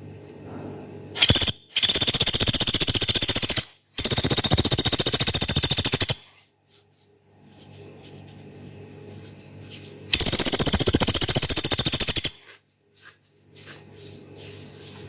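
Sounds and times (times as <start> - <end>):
woodpecker rattling trills: 1.2 - 6.3, 10.1 - 12.4.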